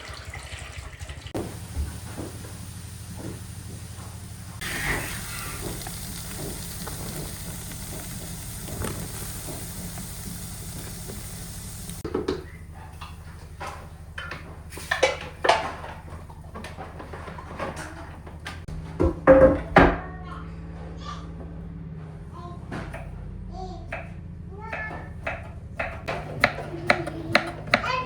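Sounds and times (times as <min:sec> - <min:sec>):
sizzling hiss: 0:01.3 - 0:12.0
pots and dishes clinking: 0:04.6 - 0:12.3.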